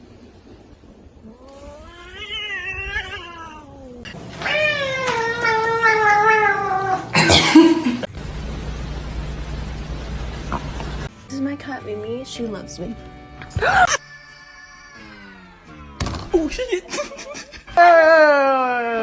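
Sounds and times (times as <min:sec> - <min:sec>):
cat yowling: 0:01.4 - 0:07.1, 0:13.8 - 0:16.0.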